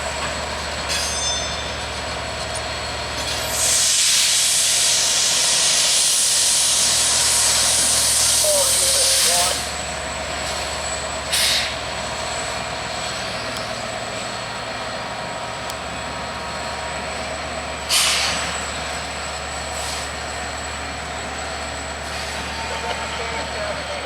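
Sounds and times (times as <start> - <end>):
diesel locomotive idling: 0.0 - 24.0
air brake hissing: 3.3 - 9.8, 11.3 - 11.8, 17.9 - 19.0, 19.7 - 20.2.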